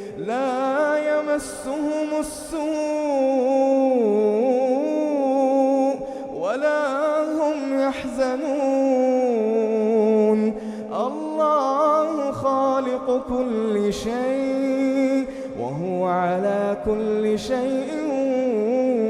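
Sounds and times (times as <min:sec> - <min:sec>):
man chanting recitation: 0:00.0 - 0:19.0.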